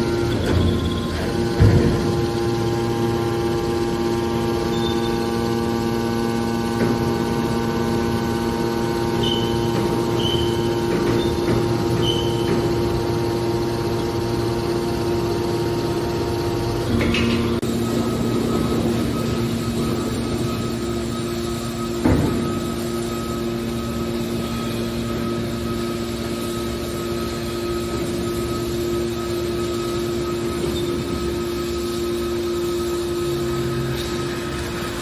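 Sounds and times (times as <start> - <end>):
hydraulic baler motor humming: 0.0 - 35.0
short high squeaks: 9.1 - 12.9.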